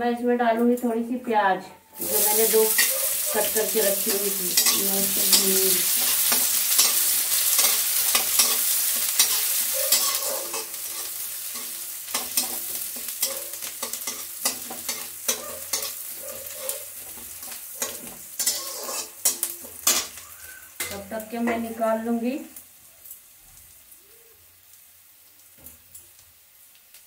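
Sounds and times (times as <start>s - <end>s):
onion and garlic sizzling in oil: 0.4s - 27.0s
metal spatula scraping a pan: 1.9s - 21.9s.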